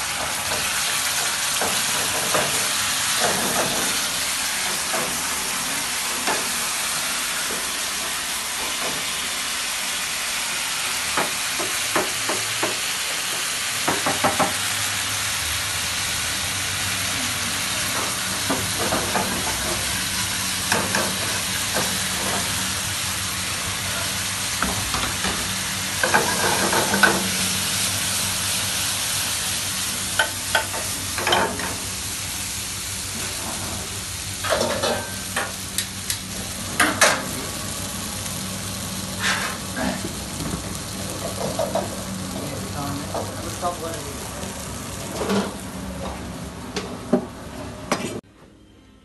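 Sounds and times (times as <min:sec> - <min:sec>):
food sizzling in a wok: 0:00.0 - 0:48.2.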